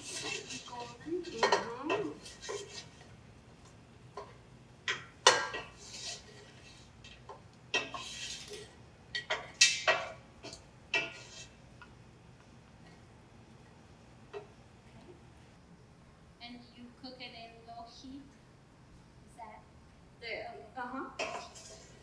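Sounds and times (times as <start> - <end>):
utensil scraping a pot: 0.0 - 3.2, 5.3 - 8.8, 10.4 - 11.6, 21.2 - 22.0.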